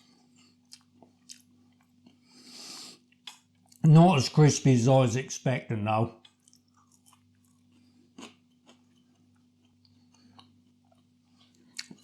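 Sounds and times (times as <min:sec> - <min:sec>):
low steady hum: 0:00.0 - 0:12.0
chewing crispy chip: 0:00.2 - 0:03.8, 0:06.1 - 0:12.0.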